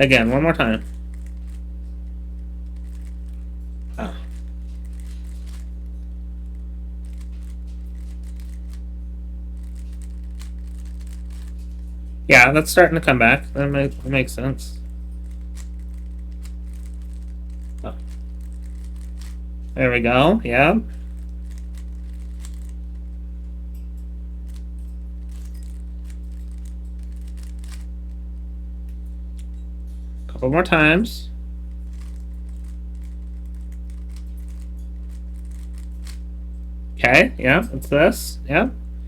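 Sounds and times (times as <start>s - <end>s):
puzzle cube plastic clicks: 0.0s - 2.0s, 2.6s - 3.4s, 4.0s - 5.7s, 6.5s - 8.8s, 9.6s - 11.8s, 13.8s - 19.4s, 20.8s - 23.1s, 24.5s - 28.2s, 31.9s - 36.2s
low electrical hum: 0.0s - 39.0s
puzzle cube layers clicking: 7.0s - 8.8s, 9.6s - 11.6s.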